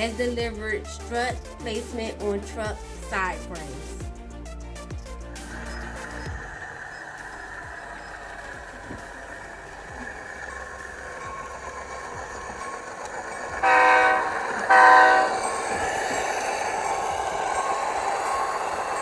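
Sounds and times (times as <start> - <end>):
model diesel engine sound: 0.0 - 19.0
air horn blasts: 13.6 - 16.1.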